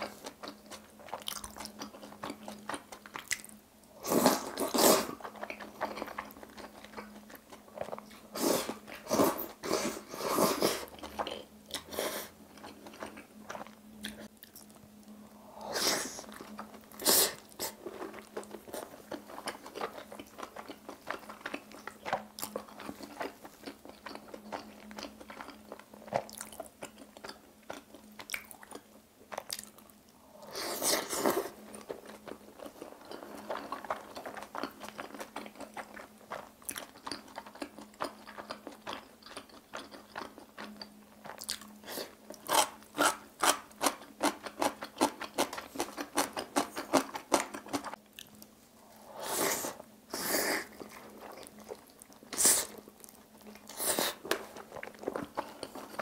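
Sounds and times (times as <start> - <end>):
wet chewing and mouth clicks: 0.1 - 3.6, 16.3 - 29.9, 31.2 - 48.5, 50.6 - 56.0.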